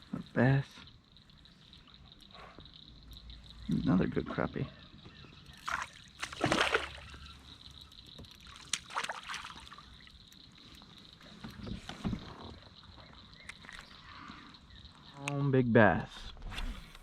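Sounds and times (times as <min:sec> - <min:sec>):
water splashing: 0:05.5 - 0:10.7.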